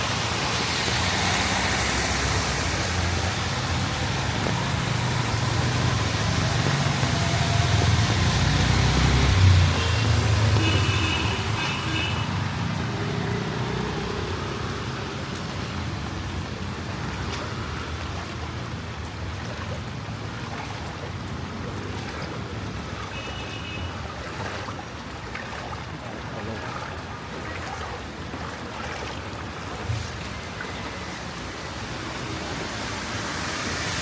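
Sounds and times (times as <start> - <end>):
street traffic noise: 0.0 - 34.0
vehicle engine rumbling: 1.3 - 10.7.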